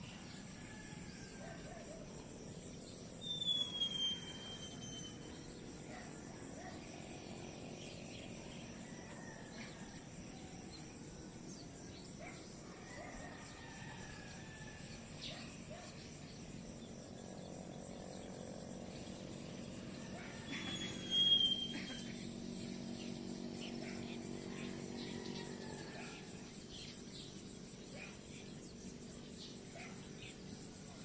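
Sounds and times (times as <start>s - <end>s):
bird whistles: 3.2s - 5.4s, 20.4s - 22.2s.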